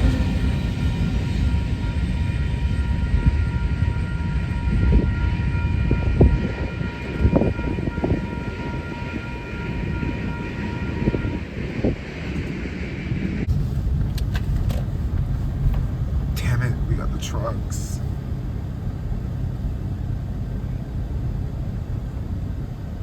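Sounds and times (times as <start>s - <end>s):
train clanks: 0.0s - 12.6s
freight train rumbling: 0.0s - 23.0s.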